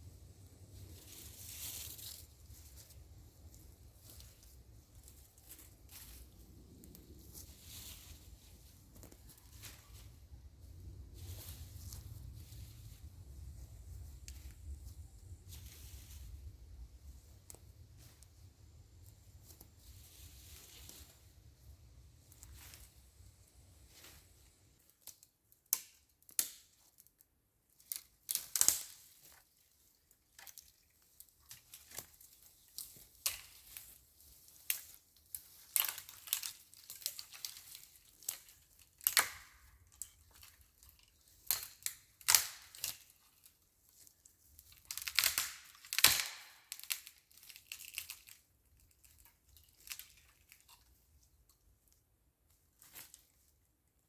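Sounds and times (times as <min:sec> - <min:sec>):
twigs snapping and rustling: 0:01.0 - 0:10.1, 0:27.8 - 0:29.4, 0:30.3 - 0:51.0.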